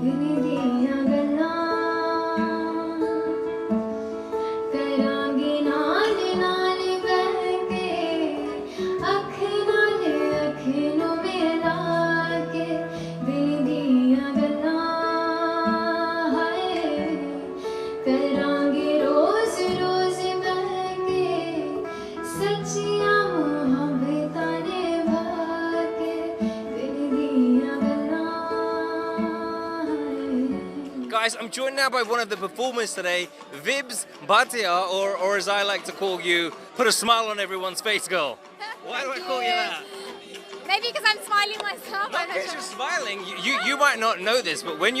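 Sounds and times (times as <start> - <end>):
woman singing: 0.0 - 3.7, 4.6 - 31.1
guitar: 0.0 - 45.0.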